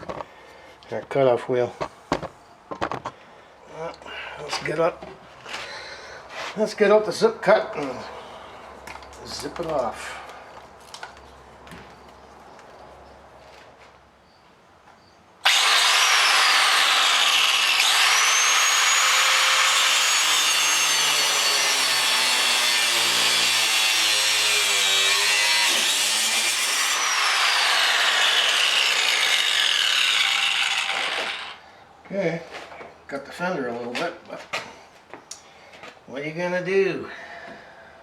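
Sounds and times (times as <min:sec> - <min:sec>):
cutoff wheel cutting steel: 0:15.4 - 0:31.6.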